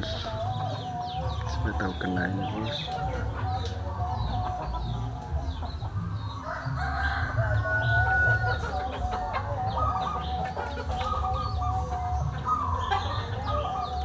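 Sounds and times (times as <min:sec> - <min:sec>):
chickens clucking: 0:00.0 - 0:14.0
small birds chirping: 0:00.0 - 0:14.0
rooster crowing: 0:06.3 - 0:10.4.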